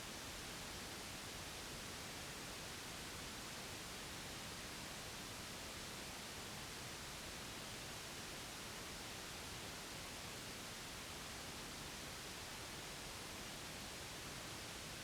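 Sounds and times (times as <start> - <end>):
steady white noise hiss: 0.0 - 15.0.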